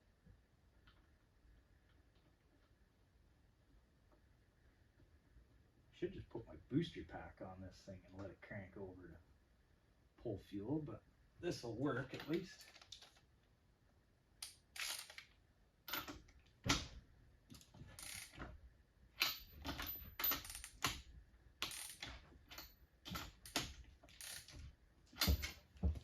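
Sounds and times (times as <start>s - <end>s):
metallic clicks of tools and parts: 19.2s - 24.6s.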